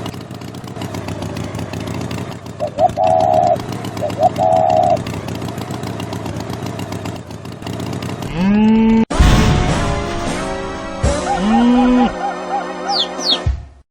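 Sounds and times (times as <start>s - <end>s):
engine-like rumble: 0.0s - 12.2s
cartoon cow mooing: 8.2s - 9.0s, 11.1s - 12.4s
music: 9.1s - 13.8s.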